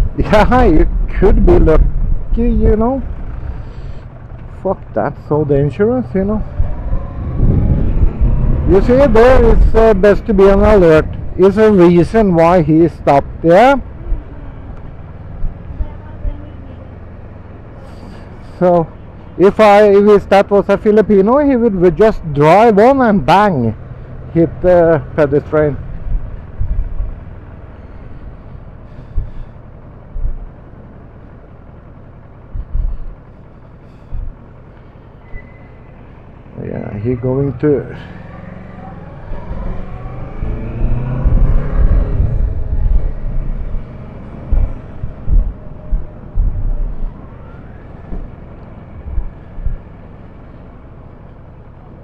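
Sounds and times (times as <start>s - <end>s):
short low thumps: 0.0s - 4.5s, 6.3s - 16.6s, 25.7s - 30.7s, 32.4s - 34.7s, 39.3s - 50.9s
road and engine noise inside vehicle: 0.0s - 52.0s.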